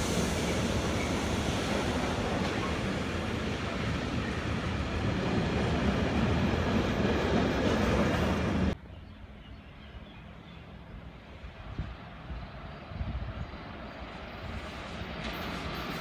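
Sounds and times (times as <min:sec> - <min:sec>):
train wheels rumbling on rail: 0:00.0 - 0:08.8, 0:11.3 - 0:16.0.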